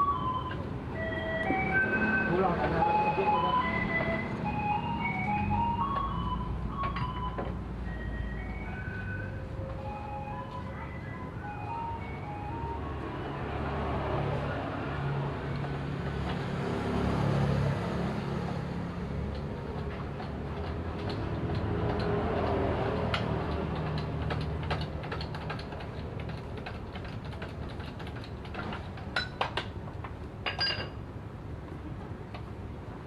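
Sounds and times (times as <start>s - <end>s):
metal tools clicking and tapping: 19.3s - 29.8s, 30.4s - 31.0s.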